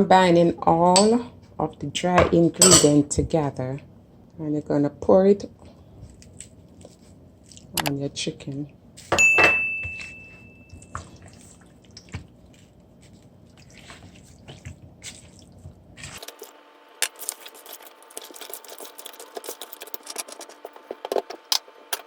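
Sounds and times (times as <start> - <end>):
wet squishing of raw chicken: 10.9 - 16.5, 17.1 - 20.6.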